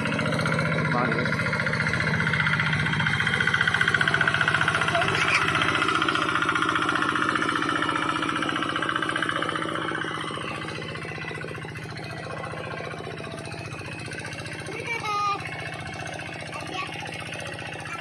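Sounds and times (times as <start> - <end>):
hand tractor engine chugging: 0.0 - 18.0.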